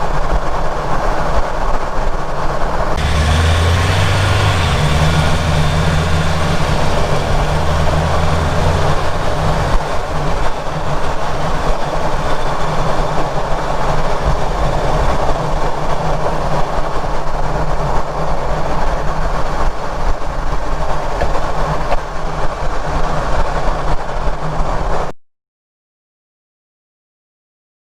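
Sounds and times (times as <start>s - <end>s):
loud steady driveline rumble: 0.0s - 25.1s
low hum: 2.9s - 13.4s.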